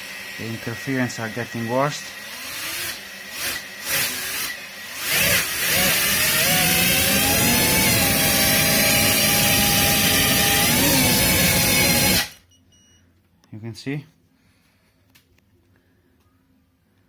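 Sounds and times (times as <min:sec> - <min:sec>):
drone motors whining: 0:02.2 - 0:12.4.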